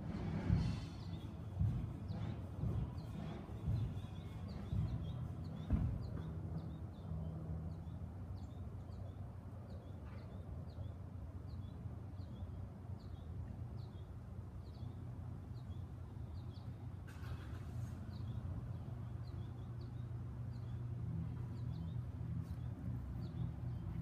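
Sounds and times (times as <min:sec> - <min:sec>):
low outdoor rumble: 0:00.0 - 0:24.0
dull bump: 0:00.5 - 0:06.8
small bird chirping: 0:00.6 - 0:17.0, 0:17.6 - 0:24.0.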